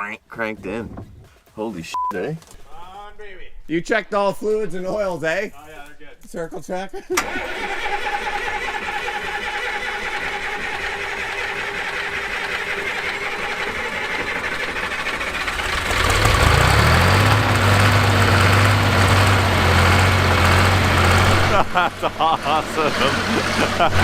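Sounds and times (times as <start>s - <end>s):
starter cranking engine: 7.1s - 24.0s
excavator engine idling: 7.2s - 24.0s.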